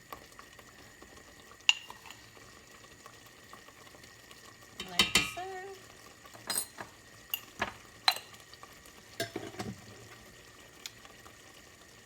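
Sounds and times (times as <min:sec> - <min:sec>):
faint sizzle: 0:00.0 - 0:12.0
spoon stirring in a pot: 0:01.6 - 0:02.5, 0:04.7 - 0:05.6, 0:06.2 - 0:08.6, 0:09.2 - 0:10.1
spoon knocking against pan: 0:04.8 - 0:05.4.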